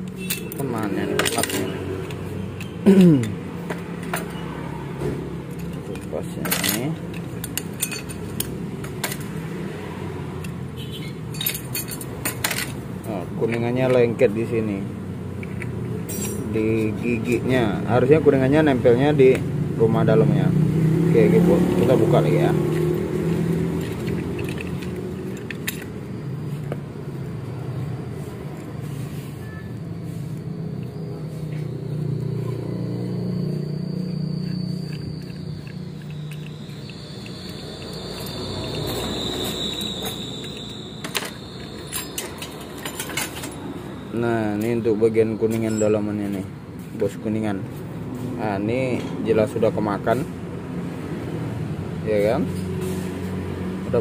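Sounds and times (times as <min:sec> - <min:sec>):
metal clutch parts clinking: 0:00.0 - 0:04.4, 0:05.4 - 0:09.6, 0:10.4 - 0:14.6, 0:15.3 - 0:18.1, 0:21.2 - 0:26.9, 0:29.7 - 0:47.2.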